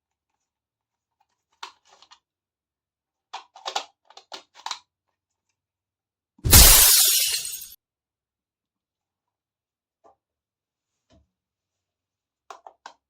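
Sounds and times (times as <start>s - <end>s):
plastic toy pieces clicking: 3.4s - 4.8s.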